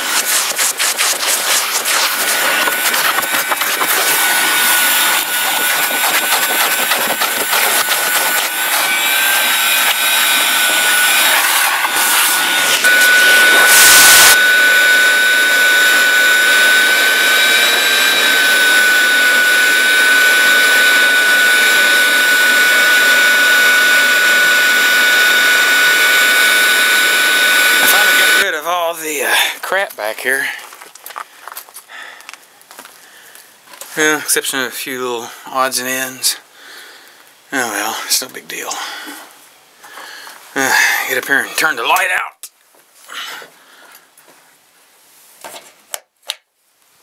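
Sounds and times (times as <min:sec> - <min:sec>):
vacuum cleaner whining: 0:00.0 - 0:29.8, 0:37.2 - 0:39.3, 0:39.9 - 0:42.3.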